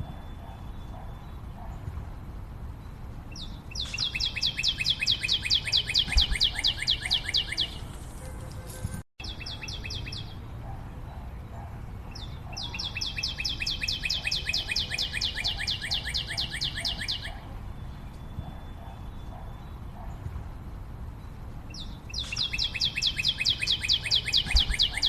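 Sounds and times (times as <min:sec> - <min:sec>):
songbird repeating falling chirp: 0:03.3 - 0:08.0, 0:12.2 - 0:19.4, 0:21.7 - 0:25.0.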